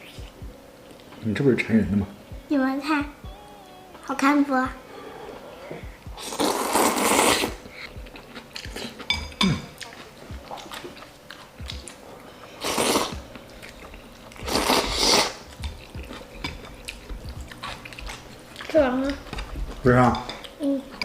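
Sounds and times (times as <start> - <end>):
person chewing food: 4.9 - 21.0.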